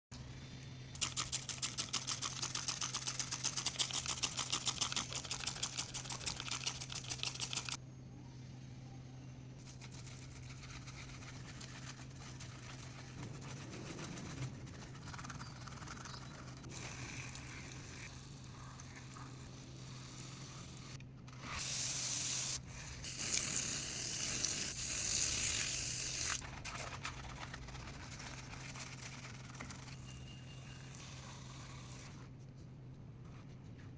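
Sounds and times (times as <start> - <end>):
scrubbing and rustling: 9.6 - 16.7, 26.4 - 29.9.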